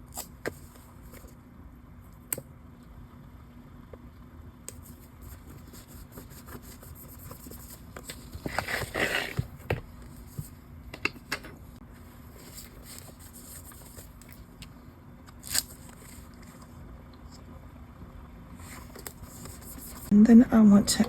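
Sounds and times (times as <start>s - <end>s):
paper rustling and scraping: 4.9s - 9.6s, 12.4s - 14.4s.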